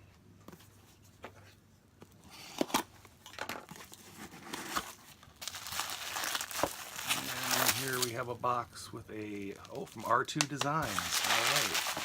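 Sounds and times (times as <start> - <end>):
packaging rustling and crinkling: 3.6 - 8.2, 9.2 - 12.0.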